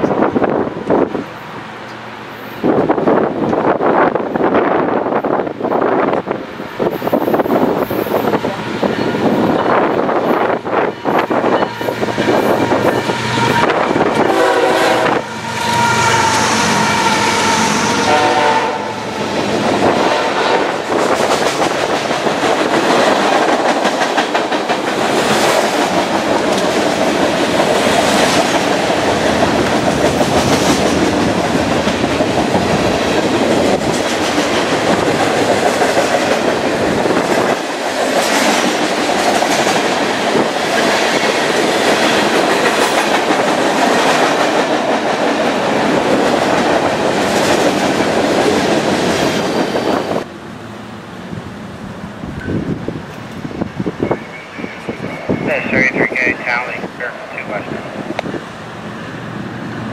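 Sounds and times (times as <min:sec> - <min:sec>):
locomotive horn: 0:11.0 - 0:19.3, 0:19.9 - 0:20.8
freight cars clickety-clack: 0:19.5 - 0:50.3, 0:54.9 - 0:58.4.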